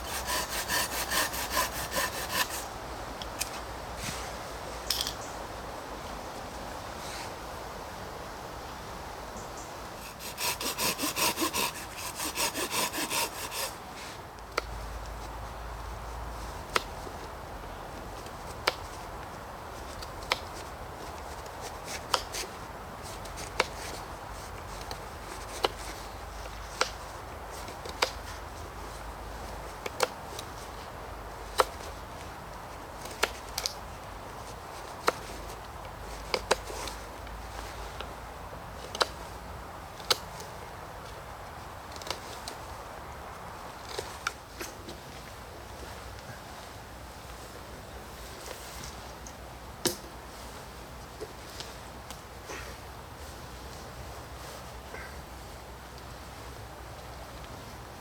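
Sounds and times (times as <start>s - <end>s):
hand saw cutting wood: 0.0s - 2.7s, 10.0s - 14.1s.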